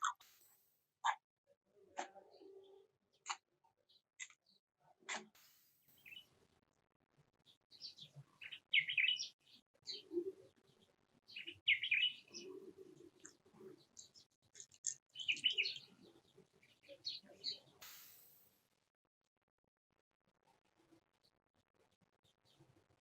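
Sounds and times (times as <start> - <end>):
bird chirps: 2.0 - 6.3, 7.7 - 18.4.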